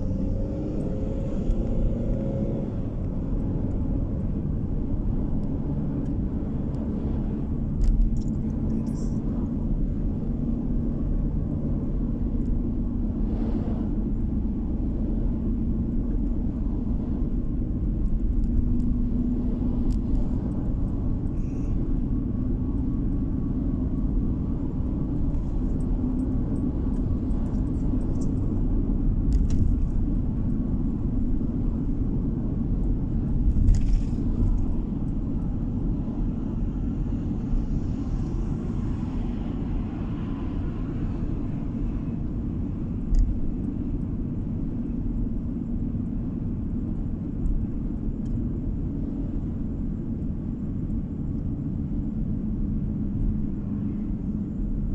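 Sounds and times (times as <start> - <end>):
car engine and road noise: 0.0 - 54.9.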